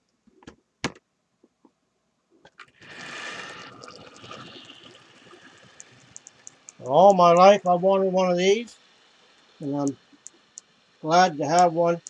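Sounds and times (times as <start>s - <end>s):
model train rushing hiss: 2.8s - 12.0s
model train clicks: 5.8s - 7.8s, 11.4s - 12.0s.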